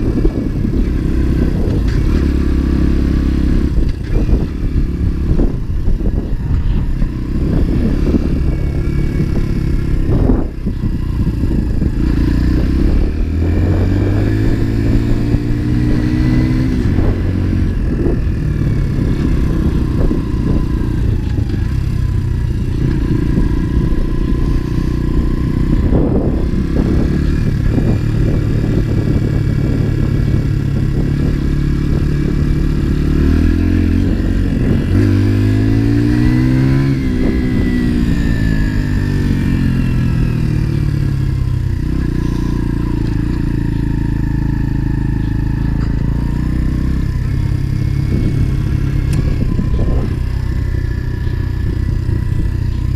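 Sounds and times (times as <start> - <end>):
motorcycle engine accelerating: 0.0 - 52.9
wind and road noise: 0.0 - 52.9.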